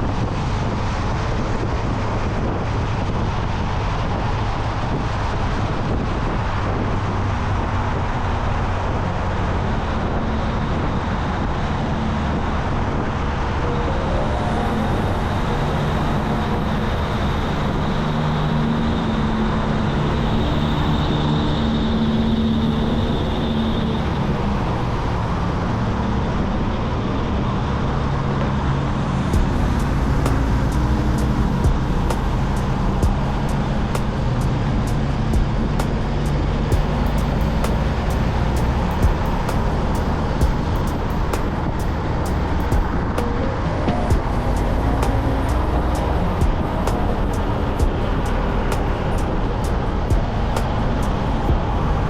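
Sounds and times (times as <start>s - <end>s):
wind and road noise: 0.0s - 52.0s
motorcycle engine running: 29.3s - 52.0s.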